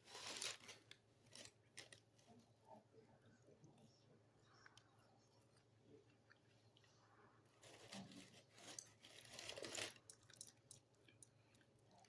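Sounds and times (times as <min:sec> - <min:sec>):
paper crackling and rustling: 0:00.0 - 0:02.0, 0:07.6 - 0:10.1.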